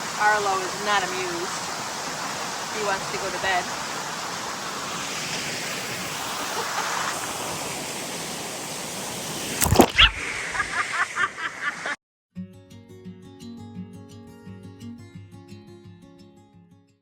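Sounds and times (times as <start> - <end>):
waterfall rushing: 0.0 - 12.0
short high squeaks: 9.6 - 10.3
acoustic guitar music: 12.4 - 17.0.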